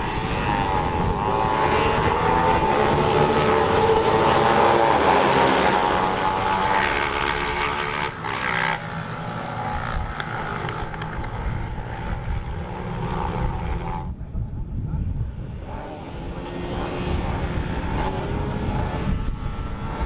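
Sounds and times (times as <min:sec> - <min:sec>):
racing motorcycle engines: 0:00.0 - 0:20.0.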